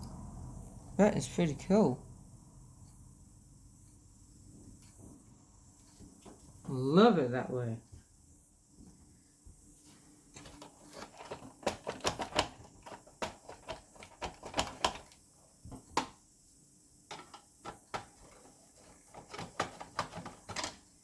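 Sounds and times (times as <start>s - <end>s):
plastic and metal parts clicking: 10.4s - 15.2s, 17.1s - 20.9s.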